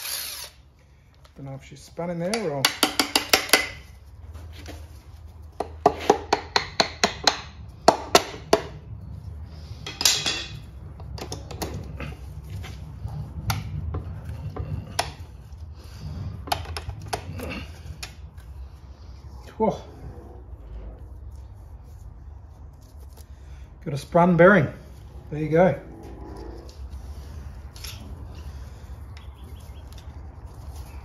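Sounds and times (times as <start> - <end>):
steady low hum: 3.6 - 31.0
metal tools tapping and clinking: 9.8 - 10.6.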